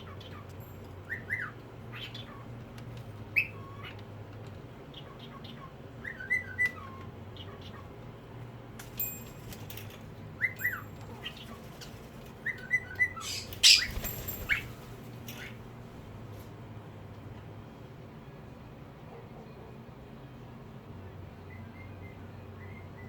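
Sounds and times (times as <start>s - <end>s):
parakeet chirping calls: 12.6s - 14.8s
parakeet harsh squawk: 13.2s - 14.2s.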